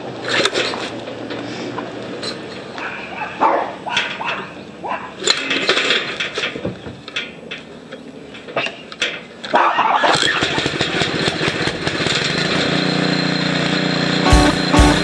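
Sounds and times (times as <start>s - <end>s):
dog barking: 2.8s - 5.2s, 9.5s - 10.2s.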